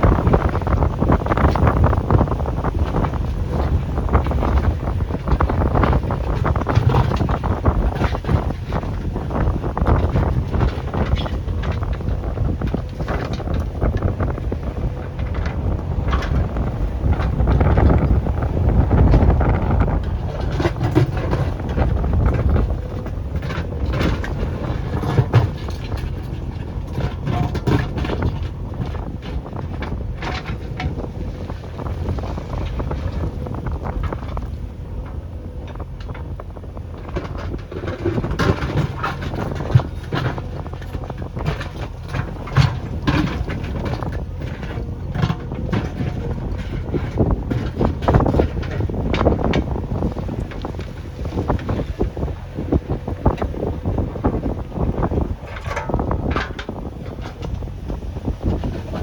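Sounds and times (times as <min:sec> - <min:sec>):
diesel engine running under load: 0:00.0 - 0:59.0
machine clanks and knocks: 0:03.0 - 0:54.0, 0:54.8 - 0:59.0.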